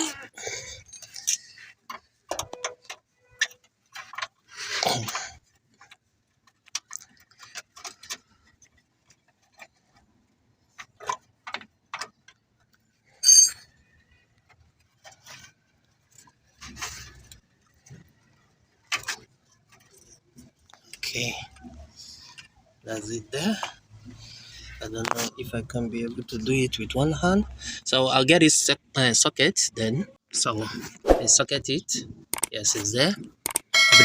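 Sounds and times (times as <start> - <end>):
small clicks and taps of tools: 32.3 - 32.6, 33.4 - 33.7.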